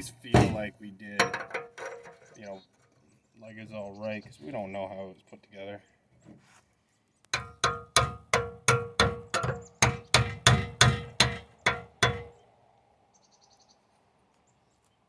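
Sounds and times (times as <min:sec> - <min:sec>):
hammer striking metal: 0:07.4 - 0:12.4.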